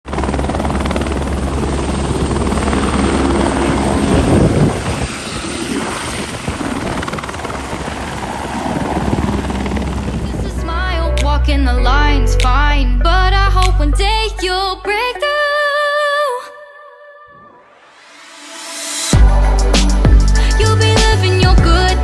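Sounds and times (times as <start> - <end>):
helicopter drone: 0.1 - 10.8, 18.1 - 22.0.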